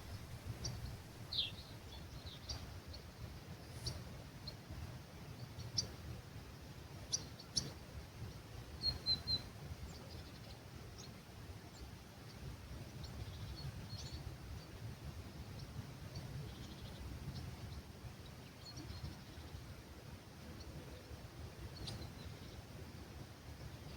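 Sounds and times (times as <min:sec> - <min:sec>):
birds chirping: 0:00.0 - 0:02.6
soft breeze: 0:00.0 - 0:23.9.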